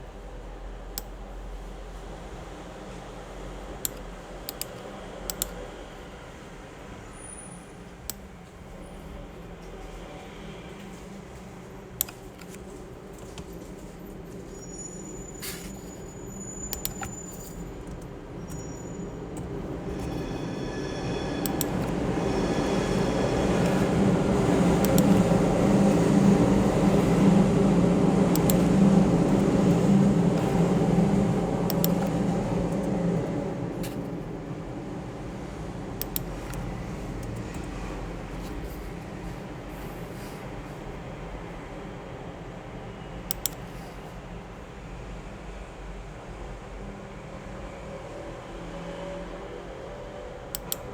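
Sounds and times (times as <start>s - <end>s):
low mechanical hum: 0.0s - 47.9s
steady low rumble: 21.6s - 39.7s.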